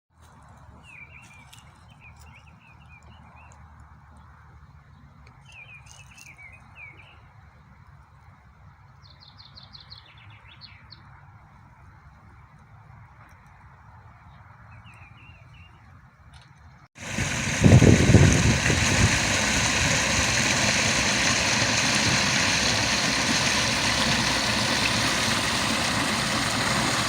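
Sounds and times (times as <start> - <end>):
flowing spring water: 17.0 - 27.0.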